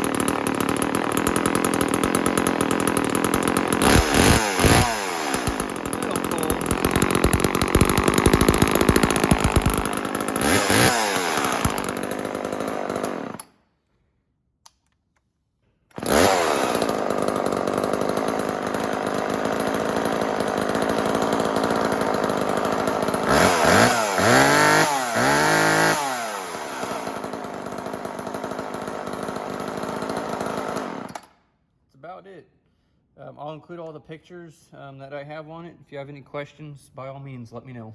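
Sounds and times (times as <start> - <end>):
chainsaw running and revving: 0.0 - 13.4, 16.0 - 31.2.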